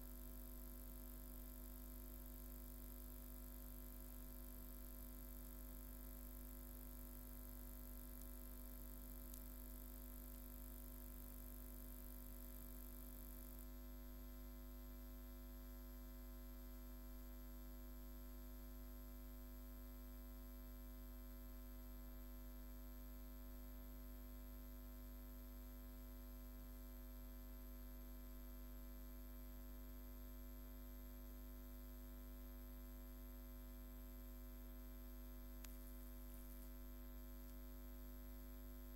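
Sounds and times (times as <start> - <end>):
electrical mains hum: 0.0 - 38.9.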